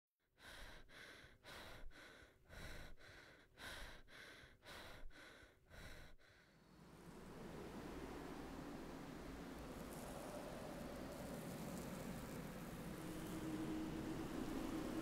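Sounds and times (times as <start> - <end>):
person breathing heavily: 0.4 - 6.6.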